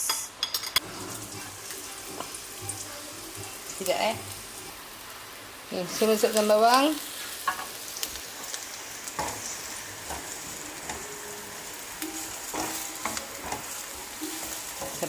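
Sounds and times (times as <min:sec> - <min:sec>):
onions sizzling in hot oil: 0:00.8 - 0:15.0
utensil scraping pan: 0:12.0 - 0:15.0.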